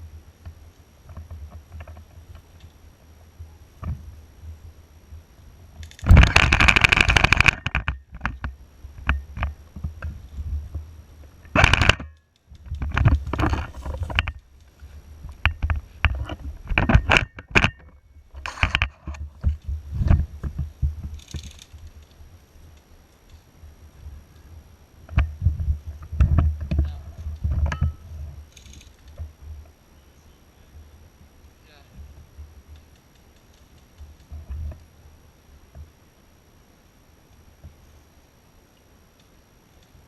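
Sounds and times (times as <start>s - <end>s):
rapid clicks: 5.8s - 9.6s
microphone handling knocks and rustling: 5.8s - 22.2s, 25.0s - 29.7s.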